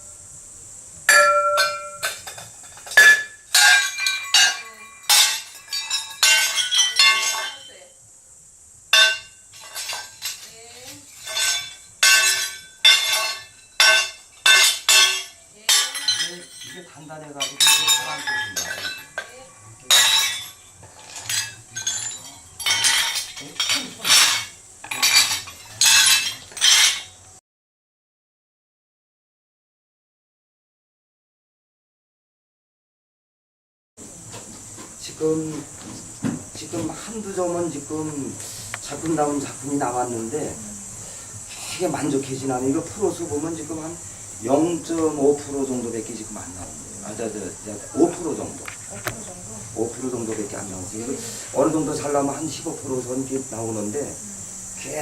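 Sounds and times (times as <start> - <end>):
ceramic pieces clinking: 1.1 - 7.8, 9.0 - 27.2.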